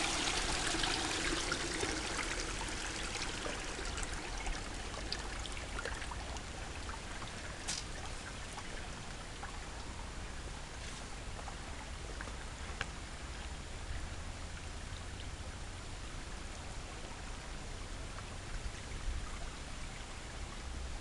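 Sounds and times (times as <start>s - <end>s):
water trickling and splashing: 0.0s - 13.7s.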